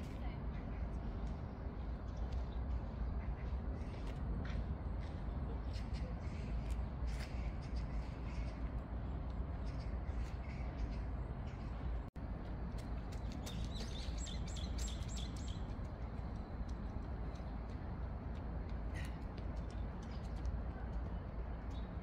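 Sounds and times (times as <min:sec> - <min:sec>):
small birds chirping: 0:13.1 - 0:16.2.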